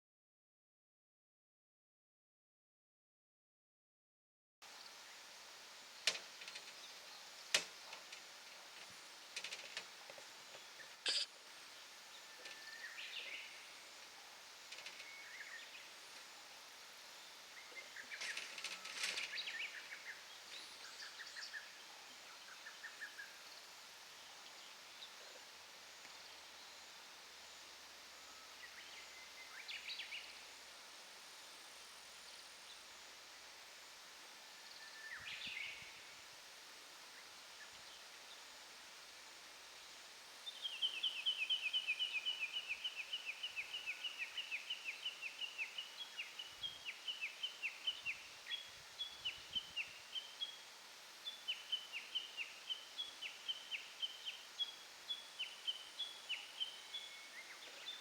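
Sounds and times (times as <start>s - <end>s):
songbird calls: 5.9s - 30.5s, 34.6s - 36.2s, 40.4s - 58.0s.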